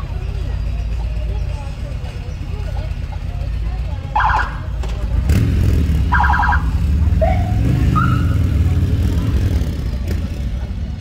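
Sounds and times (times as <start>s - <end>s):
car engine and exhaust rumble: 0.0s - 11.0s
electronic siren chirps: 6.1s - 7.4s
rising siren tones: 6.1s - 8.4s.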